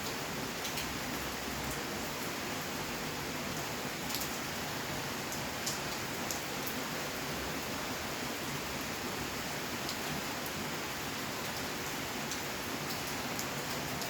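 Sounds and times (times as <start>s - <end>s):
steady rain hiss: 0.0s - 14.0s
close raindrop ticks: 4.1s - 4.4s, 5.3s - 6.8s, 11.4s - 14.0s.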